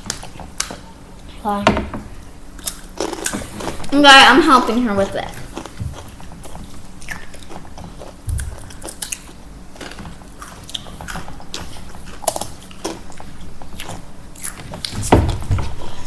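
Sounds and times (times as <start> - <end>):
crunching chips: 2.5 - 3.9.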